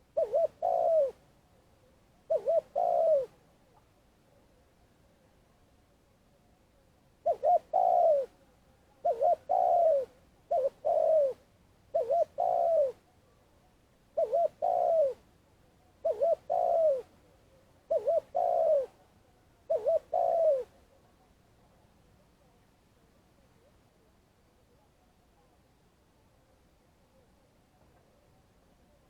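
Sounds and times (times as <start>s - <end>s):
dove cooing: 0.0s - 1.2s, 2.2s - 3.4s, 7.2s - 8.4s, 9.0s - 13.0s, 14.2s - 15.2s, 16.0s - 17.2s, 17.9s - 19.0s, 19.7s - 20.8s.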